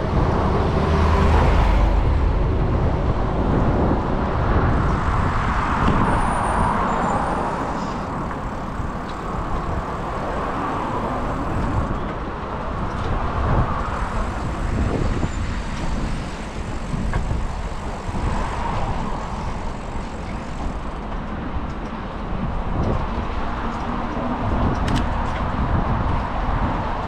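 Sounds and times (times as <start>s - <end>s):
cars passing on street: 0.0s - 27.0s
wind rumble on microphone: 0.0s - 27.0s.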